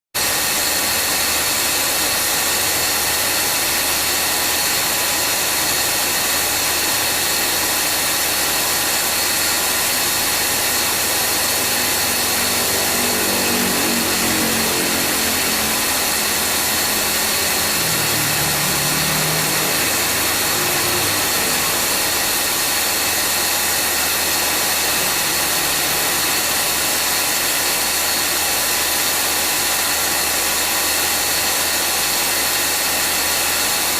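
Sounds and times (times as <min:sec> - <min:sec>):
compressor whine and hiss: 0:00.2 - 0:33.9
lower pitched tone: 0:07.7 - 0:28.0.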